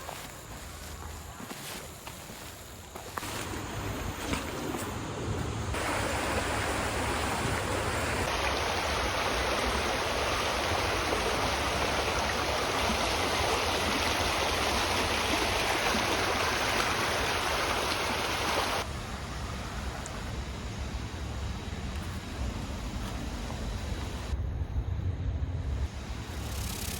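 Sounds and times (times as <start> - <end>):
water rushing: 3.0 - 20.4.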